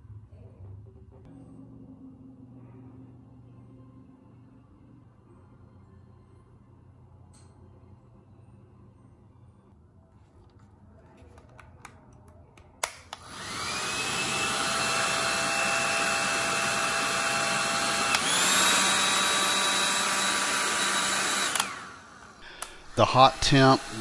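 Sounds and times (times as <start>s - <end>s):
hair dryer switch click: 12.8s - 13.5s, 18.1s - 18.6s, 21.4s - 23.0s
hair dryer fan whine: 13.1s - 24.0s.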